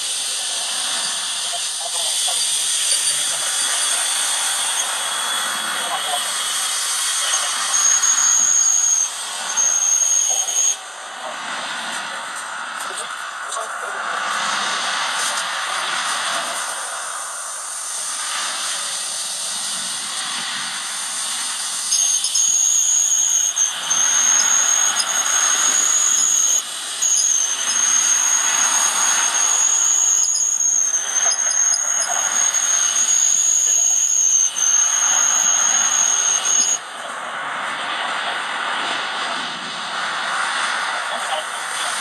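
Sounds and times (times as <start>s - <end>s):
cordless drill motor whine: 2.2s - 11.1s, 18.2s - 36.9s.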